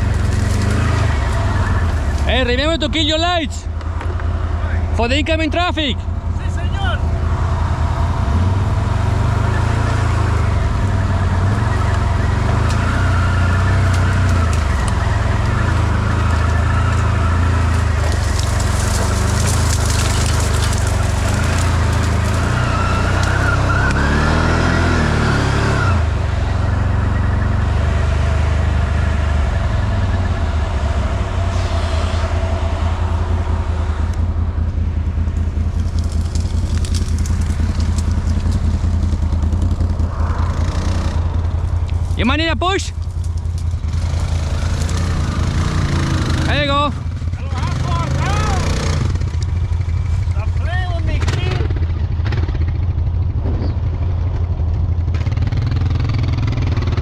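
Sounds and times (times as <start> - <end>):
atv engine running: 0.0 - 57.0
rushing noise: 29.8 - 35.8, 37.3 - 46.3.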